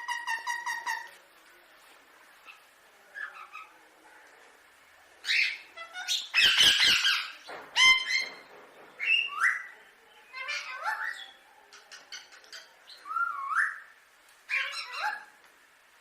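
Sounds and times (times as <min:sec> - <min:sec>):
parakeet squawking: 0:05.3 - 0:08.2, 0:14.5 - 0:15.3.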